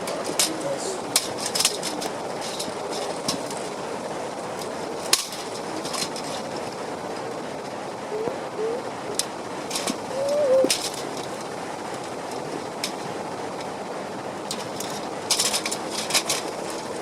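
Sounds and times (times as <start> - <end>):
steady rushing background: 0.0 - 17.0
metal parts clinking and clattering: 15.3 - 16.6.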